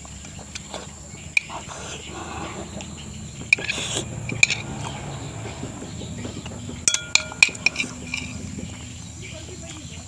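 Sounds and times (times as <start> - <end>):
utensils clinking against dish: 6.3 - 9.8.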